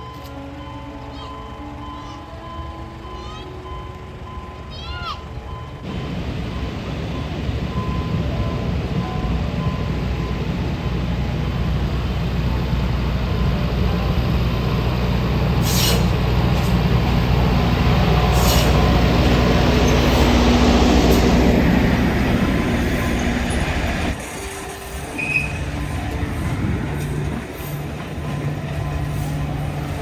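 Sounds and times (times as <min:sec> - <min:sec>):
train rumbling: 0:00.0 - 0:30.0
sharp high-pitched squeaks: 0:18.3 - 0:18.9, 0:22.9 - 0:29.6.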